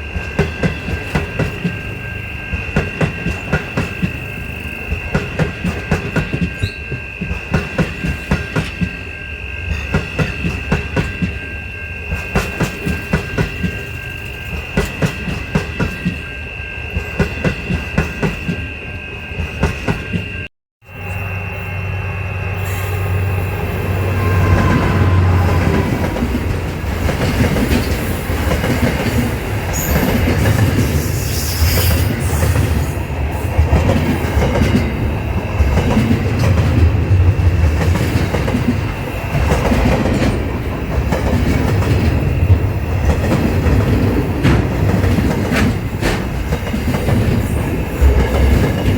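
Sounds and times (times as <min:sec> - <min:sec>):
train wheels clicking over rail joints: 0:00.0 - 0:11.5, 0:12.1 - 0:18.7, 0:24.6 - 0:48.9
deep rumble of passing train: 0:00.0 - 0:48.9
high-pitched wheel squeal: 0:00.4 - 0:26.8, 0:29.6 - 0:33.1.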